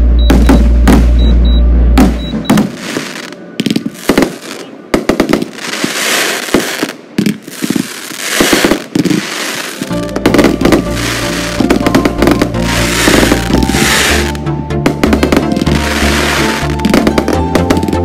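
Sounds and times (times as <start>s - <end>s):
music with sustained low notes: 0.0s - 2.2s, 9.8s - 18.0s
fireworks banging and crackling: 0.2s - 1.4s, 2.0s - 18.0s
crackling hiss: 2.6s - 14.3s.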